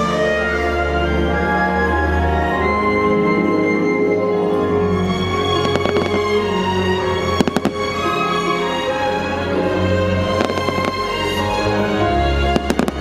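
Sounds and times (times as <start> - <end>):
fireworks show music: 0.0 - 13.0
fireworks bursting bangs: 5.6 - 6.4, 7.2 - 8.1, 10.2 - 11.4, 12.5 - 13.0.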